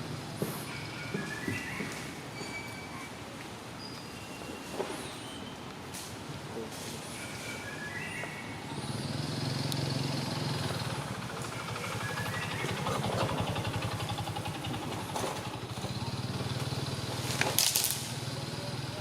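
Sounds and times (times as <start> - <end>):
vehicle engine running: 8.7 - 19.0.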